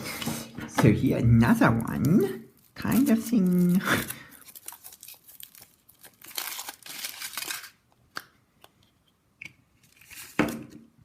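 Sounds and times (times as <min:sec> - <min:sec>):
foil wrapper tearing and crinkling: 0:01.9 - 0:07.8.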